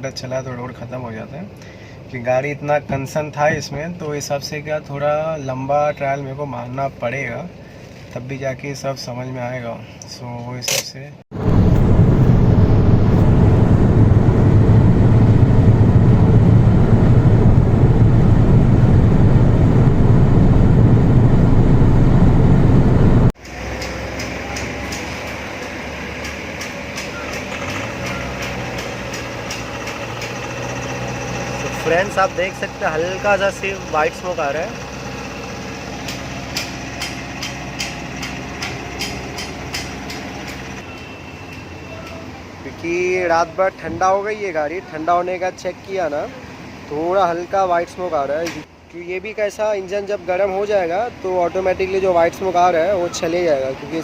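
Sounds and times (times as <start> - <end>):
diesel car engine rumbling: 11.4 - 23.4.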